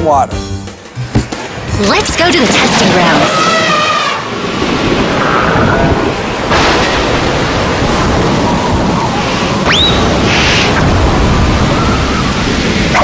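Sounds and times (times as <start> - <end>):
wind and rain rushing: 0.8 - 13.0
rising whistle: 9.1 - 10.8, 11.6 - 12.3.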